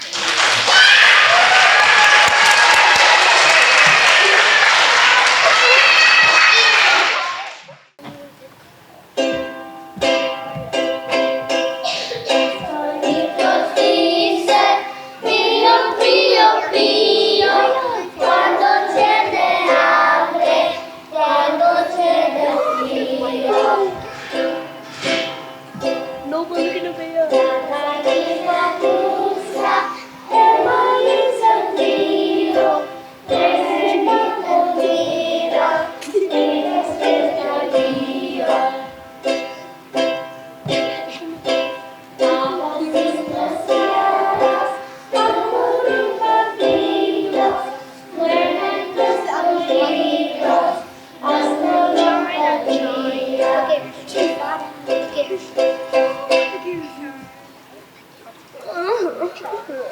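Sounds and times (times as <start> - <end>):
ukulele strumming: 9.1 - 57.4
children singing: 10.1 - 57.3.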